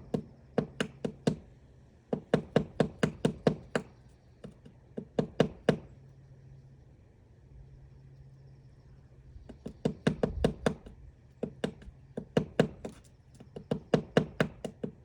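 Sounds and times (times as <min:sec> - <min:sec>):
woodpecker pecking wood: 0:00.0 - 0:01.5, 0:02.1 - 0:05.9, 0:09.5 - 0:15.0.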